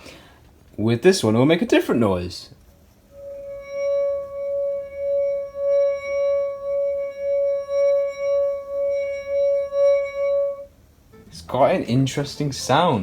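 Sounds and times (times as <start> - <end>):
wine glass rim ringing: 2.9 - 12.2.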